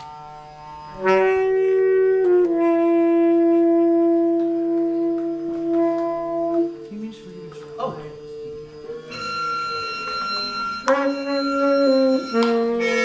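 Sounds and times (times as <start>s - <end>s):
wind and brass long notes: 0.0s - 6.9s, 8.4s - 13.0s
low drone: 0.0s - 13.0s.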